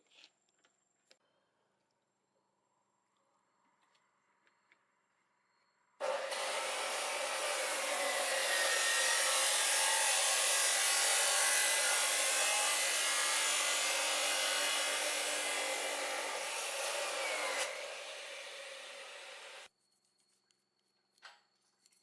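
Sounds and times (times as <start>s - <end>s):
power tool running: 6.0s - 19.7s.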